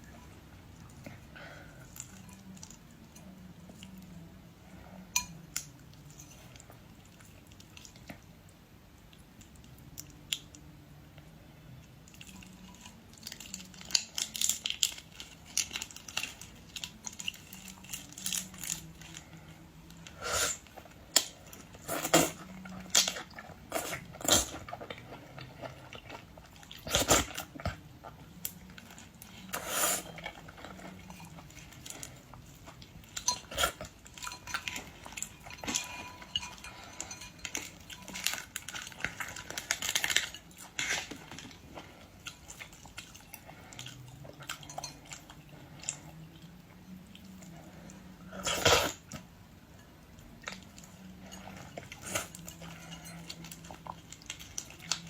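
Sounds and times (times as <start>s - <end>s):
chewing: 11.8s - 55.0s
dishes clinking: 33.2s - 38.4s.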